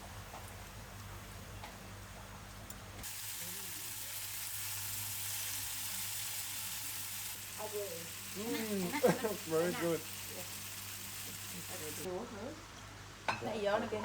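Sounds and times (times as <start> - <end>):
steady hiss: 3.0 - 12.1.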